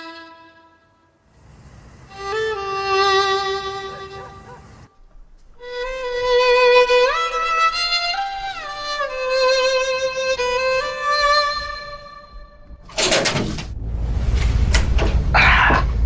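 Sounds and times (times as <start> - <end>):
slow solo violin melody: 0.0 - 1.1, 2.1 - 4.4, 5.4 - 12.8.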